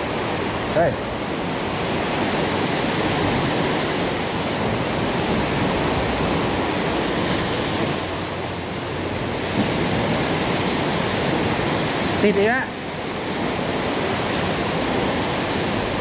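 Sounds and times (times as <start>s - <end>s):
sea surf washing on shore: 0.0s - 16.0s.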